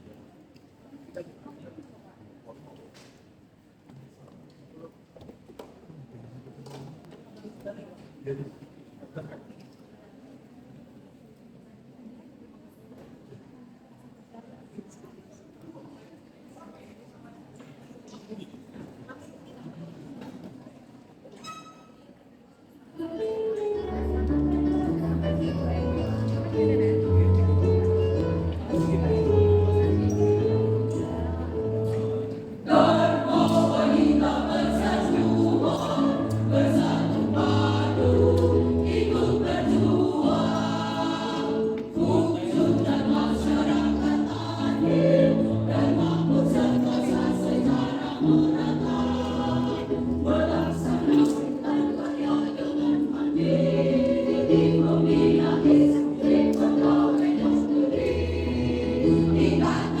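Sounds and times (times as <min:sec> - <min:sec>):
choir singing in harmony: 0:23.7 - 1:00.0.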